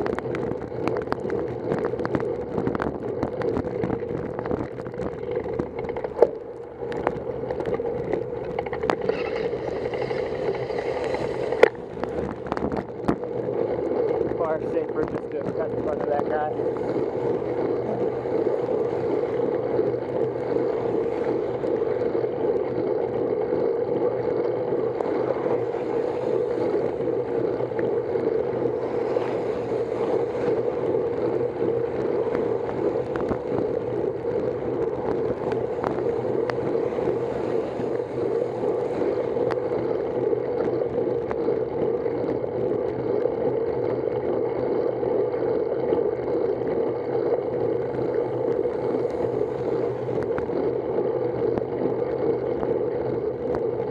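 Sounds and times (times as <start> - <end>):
faint ticks: 0.0 - 53.9.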